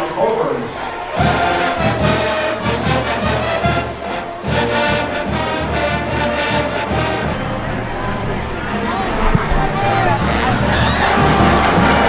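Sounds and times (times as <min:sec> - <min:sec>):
brass band playing: 0:00.9 - 0:12.0
steady drum beat: 0:01.2 - 0:07.5, 0:09.8 - 0:12.0.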